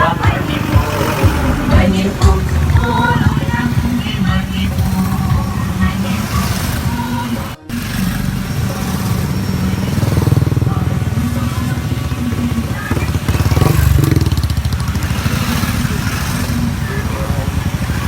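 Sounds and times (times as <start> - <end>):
motorcycle engines rumbling: 0.0 - 18.0.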